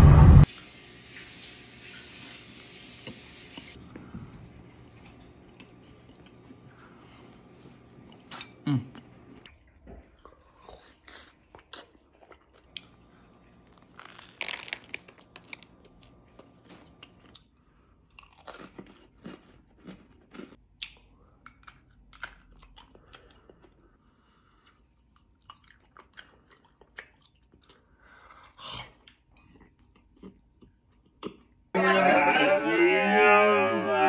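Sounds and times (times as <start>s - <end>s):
person chewing crunchy food: 5.1s - 28.0s, 29.0s - 31.6s.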